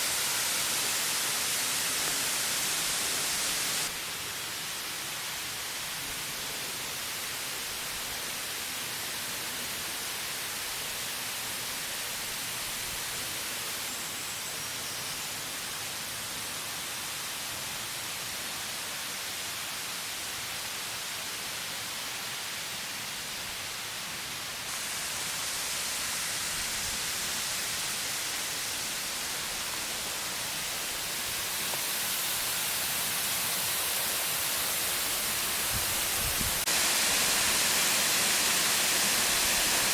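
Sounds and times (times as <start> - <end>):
waterfall rushing: 0.0 - 14.0, 23.3 - 39.9.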